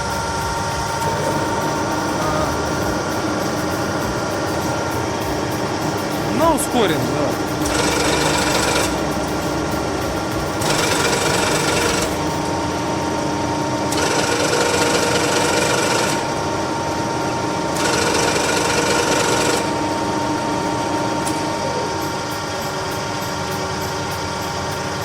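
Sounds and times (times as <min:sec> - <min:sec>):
harsh mechanical grinding: 0:00.0 - 0:13.2
lathe gearbox whine: 0:00.0 - 0:25.0.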